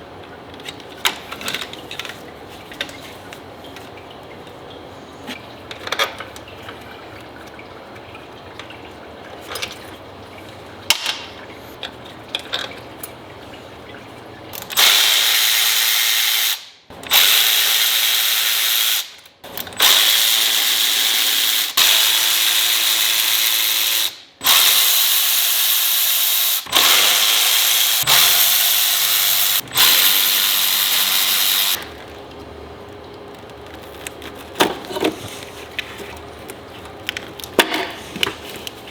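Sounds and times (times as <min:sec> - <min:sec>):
power tool hissy bursts: 0:22.9 - 0:31.8.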